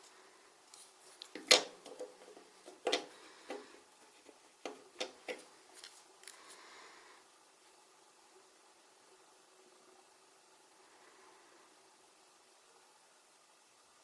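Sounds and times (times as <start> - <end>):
soft rustle: 0.0 - 1.4, 5.4 - 6.8.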